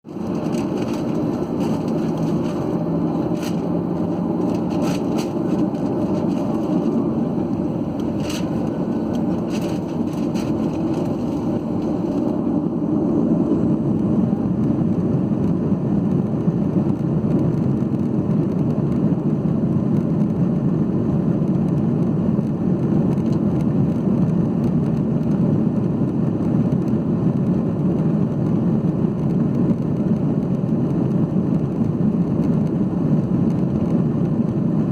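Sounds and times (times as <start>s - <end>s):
airplane cabin rumble: 0.0s - 34.9s
light clicks and rattles: 0.1s - 12.4s.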